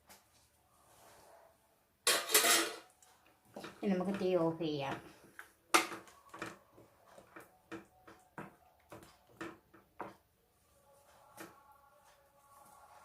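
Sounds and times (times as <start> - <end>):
utensils tapping a cooking pot: 3.5 - 6.6, 7.2 - 10.2.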